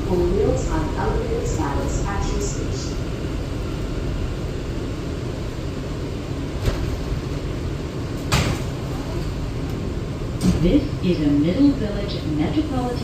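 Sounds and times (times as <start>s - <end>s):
subway car hum: 0.0s - 13.0s.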